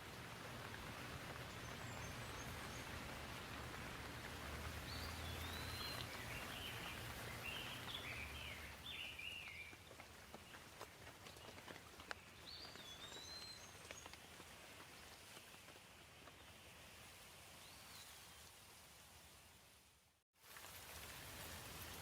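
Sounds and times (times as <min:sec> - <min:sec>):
raindrops ticking sharply: 0:00.0 - 0:15.8
light gentle rain: 0:00.0 - 0:22.0
bird singing whistled phrases: 0:04.9 - 0:09.7.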